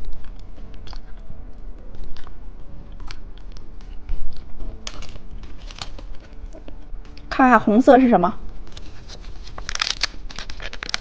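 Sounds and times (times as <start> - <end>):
steady low hum: 0.0 - 11.0
plastic packaging crinkling: 4.4 - 6.4, 8.7 - 11.0.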